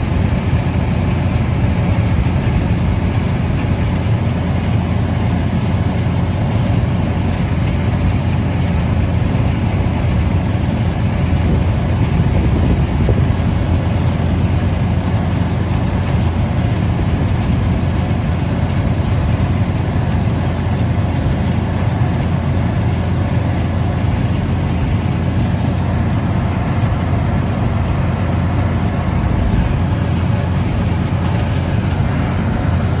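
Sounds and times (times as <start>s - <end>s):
tractor engine droning: 0.0s - 33.0s
baler baling hay: 12.8s - 33.0s.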